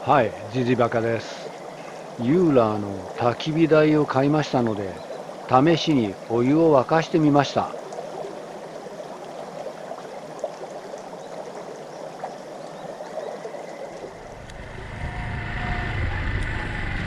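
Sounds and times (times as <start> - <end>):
stream flowing: 0.0 - 15.7
low rumble: 14.1 - 17.0.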